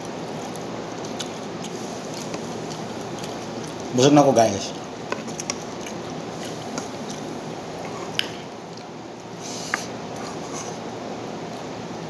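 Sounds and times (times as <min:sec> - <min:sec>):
chewing and mouth sounds: 0:00.0 - 0:10.8
fingers squishing food on plate: 0:00.2 - 0:04.0, 0:04.6 - 0:08.9.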